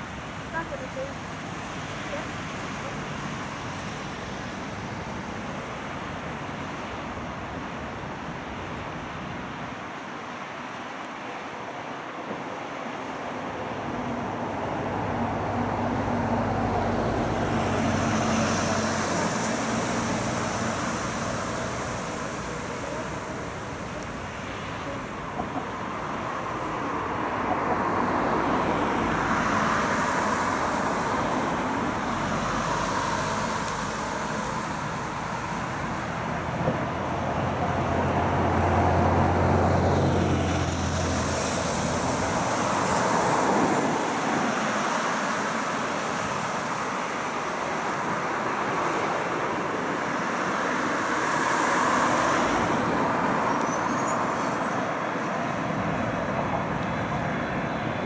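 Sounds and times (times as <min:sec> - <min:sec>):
passing vehicles: 0:12.6 - 0:58.0.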